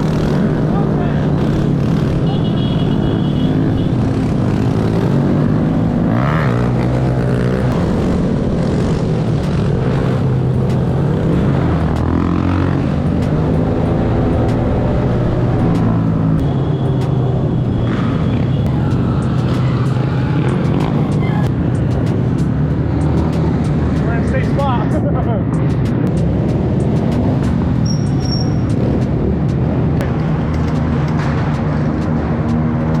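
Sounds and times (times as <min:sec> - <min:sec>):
mini bike engines revving: 0:00.0 - 0:16.0.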